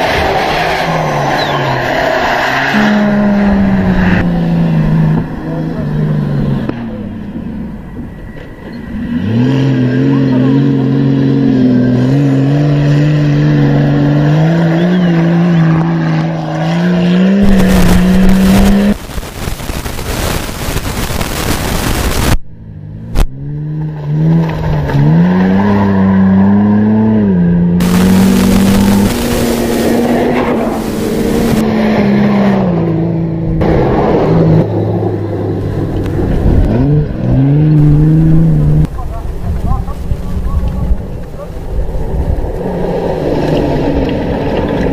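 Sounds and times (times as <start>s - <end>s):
race vehicle engine revving: 8.8s - 19.0s, 23.0s - 39.1s
loud rushing noise: 17.4s - 22.4s, 27.8s - 32.6s.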